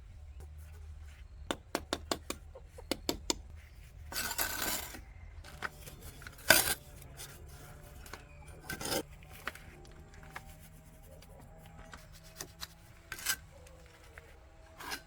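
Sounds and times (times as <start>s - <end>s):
scraping rustle: 3.5s - 15.0s.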